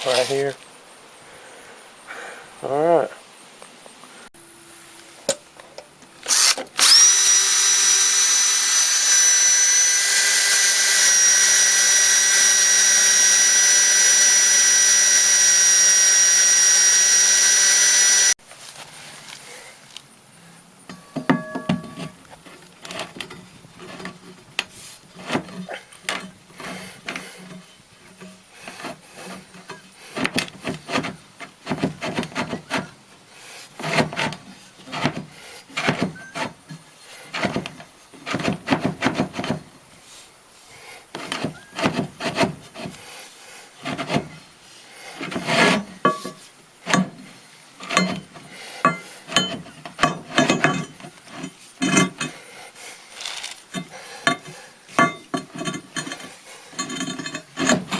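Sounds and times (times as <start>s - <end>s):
scraping and rubbing against wood: 20.9s - 40.3s, 41.1s - 44.5s, 45.1s - 57.9s.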